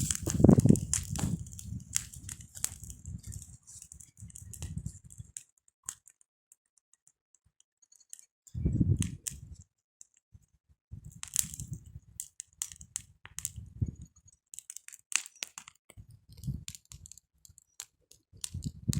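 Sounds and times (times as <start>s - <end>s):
campfire wood crackling: 0.0s - 6.0s, 8.8s - 9.6s, 11.1s - 18.9s.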